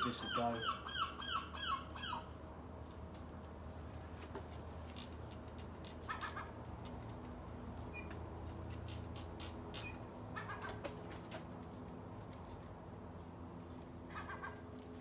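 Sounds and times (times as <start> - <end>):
bird calling: 0.0 - 2.3, 14.1 - 14.7.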